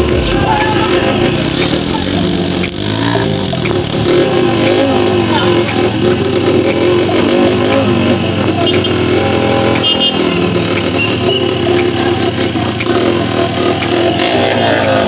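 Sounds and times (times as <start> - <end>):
motorcycle engine running: 0.0 - 15.0
sharp clicks and knocks: 2.5 - 2.8.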